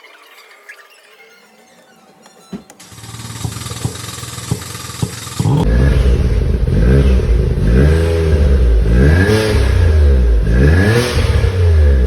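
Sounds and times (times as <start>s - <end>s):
car engine revving: 2.8s - 12.0s.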